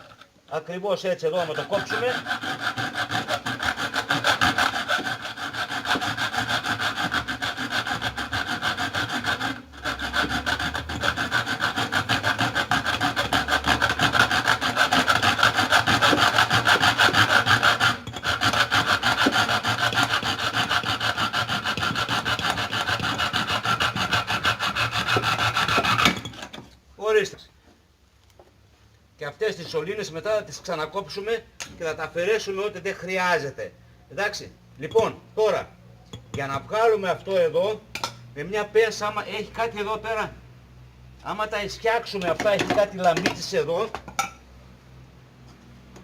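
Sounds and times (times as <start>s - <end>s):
hacksaw cutting metal pipe: 1.3s - 26.7s, 42.2s - 44.4s.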